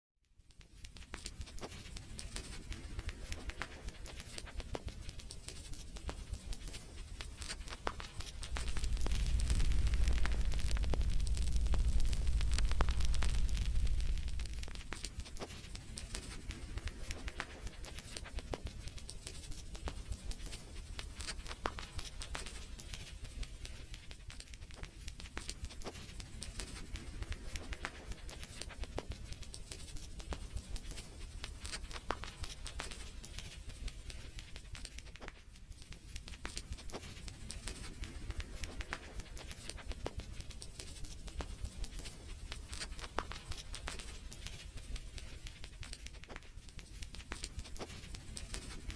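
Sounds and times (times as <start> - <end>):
wood fire crackling: 0.6 - 48.9
low rumble: 8.2 - 15.3.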